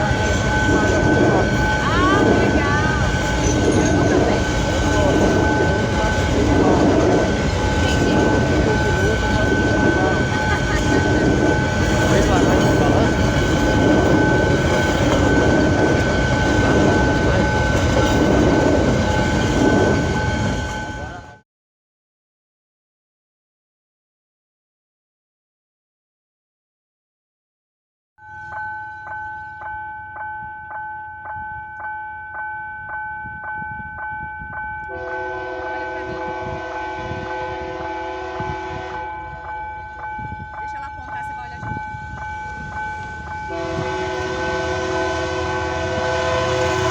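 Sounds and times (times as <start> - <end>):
crossing warning bell ringing: 0.0 - 21.4, 28.2 - 46.9
train wheels rumbling on rails: 0.0 - 21.4, 28.8 - 46.9
locomotive air horn blast: 34.9 - 39.2, 43.5 - 46.9.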